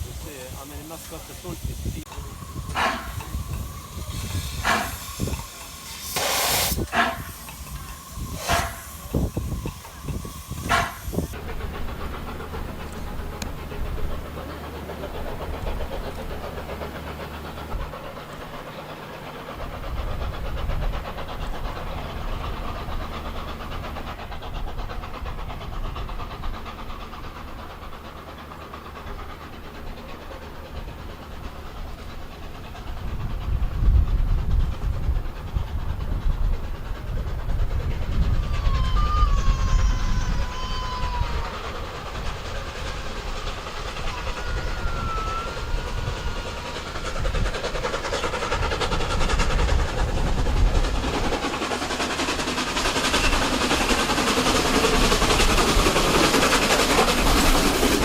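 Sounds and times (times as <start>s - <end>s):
loud sharp exhaust chuffs: 0.0s - 18.7s
locomotive rumble: 0.0s - 58.0s
steam locomotive hissing steam: 0.0s - 58.0s.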